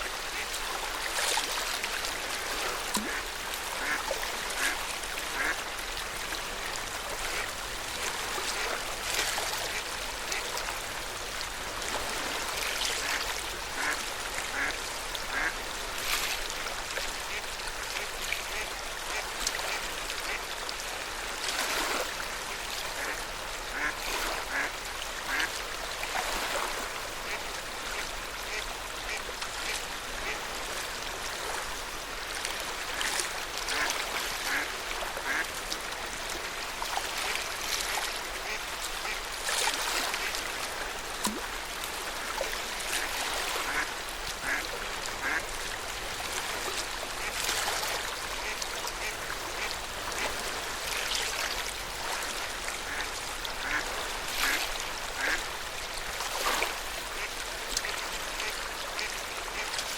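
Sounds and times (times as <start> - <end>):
water lapping at shore: 0.0 - 59.9
ducks quacking: 3.0 - 3.2, 3.8 - 4.0, 4.6 - 5.6, 13.8 - 14.7, 15.3 - 15.5, 23.7 - 25.5, 34.5 - 35.4, 43.6 - 45.4, 52.9 - 54.6, 55.2 - 55.4.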